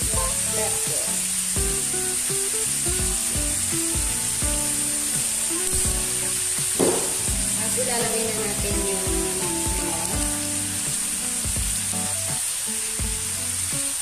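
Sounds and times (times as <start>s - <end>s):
background music with a beat: 0.0s - 14.0s
food sizzling in a wok: 0.0s - 14.0s.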